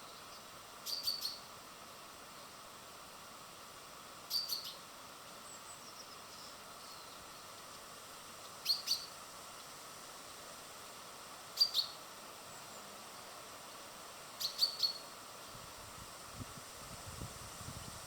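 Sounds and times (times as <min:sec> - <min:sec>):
small birds chirping: 0:00.0 - 0:01.5, 0:04.3 - 0:04.8, 0:05.4 - 0:07.8, 0:08.4 - 0:09.7, 0:11.6 - 0:13.4, 0:14.1 - 0:15.1
steady background hiss: 0:00.0 - 0:18.0.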